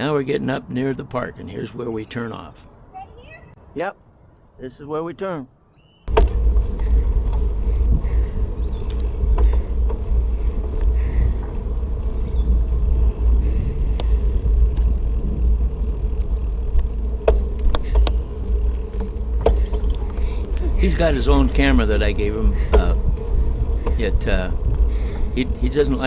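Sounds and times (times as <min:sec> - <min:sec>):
electric motor hum: 0:06.1 - 0:26.0
wind buffeting microphone: 0:06.1 - 0:26.0.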